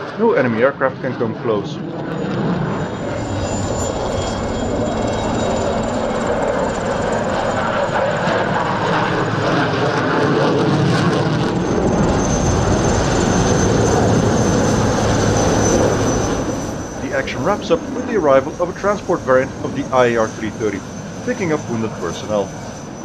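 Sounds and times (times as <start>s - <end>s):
jet noise rush: 2.0s - 23.0s
thin high whine: 2.1s - 8.6s, 11.9s - 23.0s.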